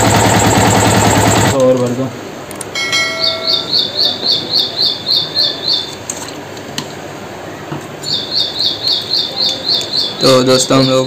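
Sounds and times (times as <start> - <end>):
bird chirping: 2.8 - 6.0, 8.0 - 11.0.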